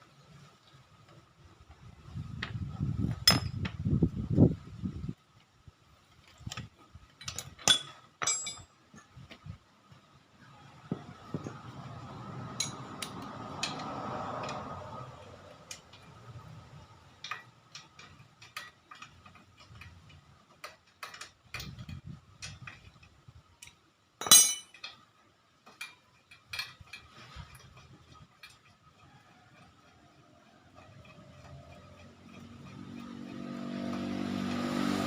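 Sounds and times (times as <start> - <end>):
metal tools clinking: 7.2 - 8.7, 23.6 - 25.1.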